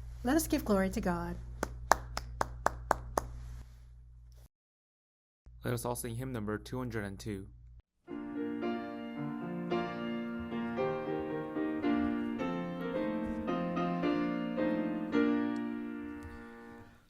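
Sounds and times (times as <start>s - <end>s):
piano playing hymn chords: 8.1s - 17.0s.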